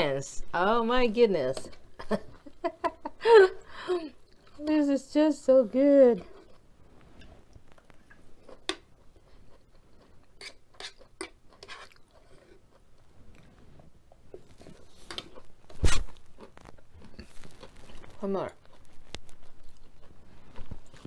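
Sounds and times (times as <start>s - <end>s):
chewing and crunching food: 4.1s - 4.8s, 6.2s - 21.0s.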